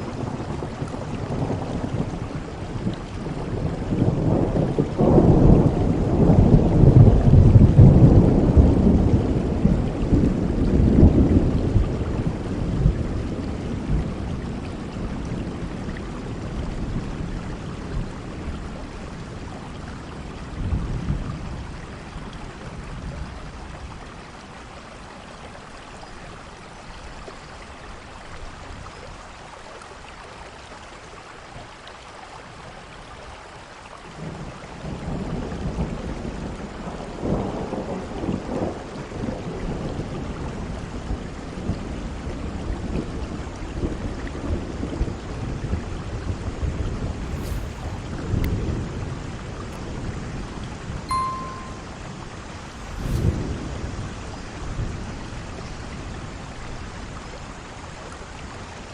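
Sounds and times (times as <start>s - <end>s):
steady rain: 0.0s - 58.9s
thunder rumbling: 46.8s - 50.6s.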